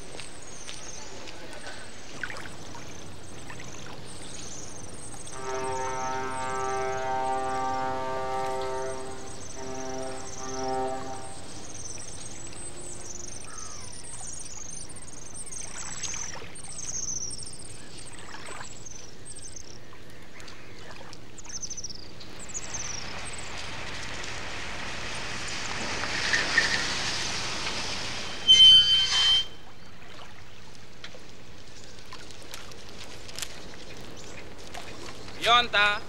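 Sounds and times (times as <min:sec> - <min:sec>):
birds chirping: 0:00.0 - 0:29.9
car driving up: 0:22.6 - 0:28.5.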